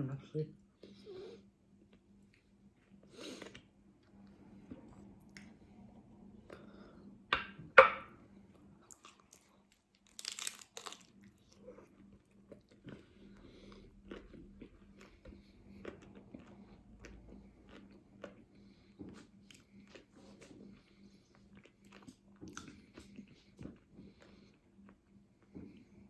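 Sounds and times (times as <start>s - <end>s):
chewing: 8.8s - 26.0s
taco shell crunching: 8.9s - 13.0s.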